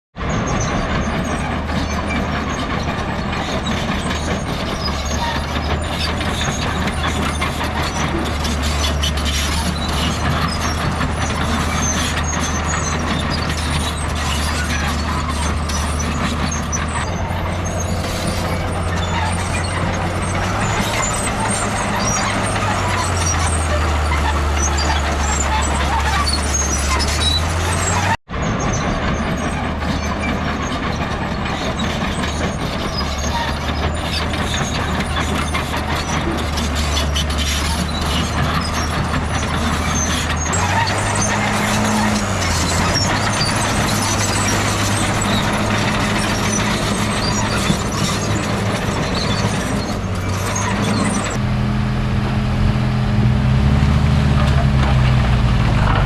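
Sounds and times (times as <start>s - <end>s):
heavy diesel machinery running: 0.1s - 56.0s.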